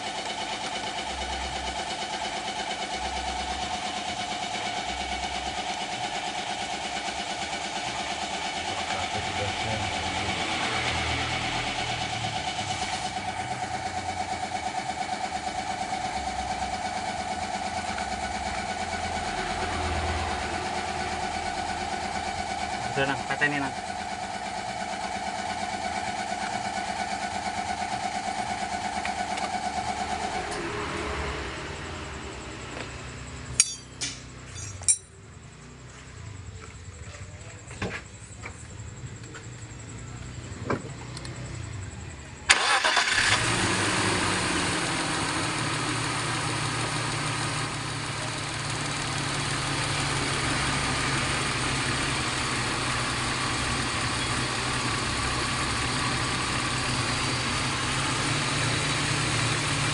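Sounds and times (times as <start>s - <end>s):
car engine idling: 0.0s - 34.2s, 35.2s - 59.9s
sharp metallic clinks: 33.5s - 35.2s.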